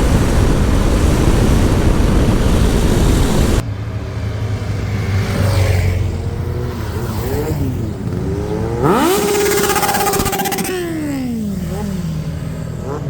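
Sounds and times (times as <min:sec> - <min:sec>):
wind rushing over microphone: 0:00.0 - 0:03.7
vehicle engines revving and passing: 0:02.7 - 0:13.0.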